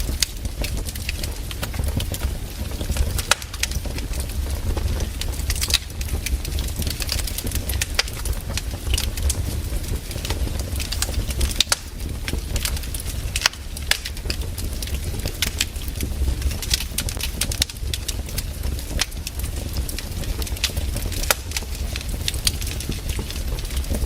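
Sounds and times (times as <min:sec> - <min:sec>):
low rumble: 0:00.0 - 0:17.0
firewood crackling and popping: 0:00.0 - 0:24.0.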